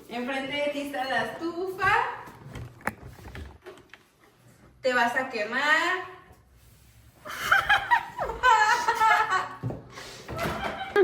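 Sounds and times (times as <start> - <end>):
people laughing: 7.3 - 9.6.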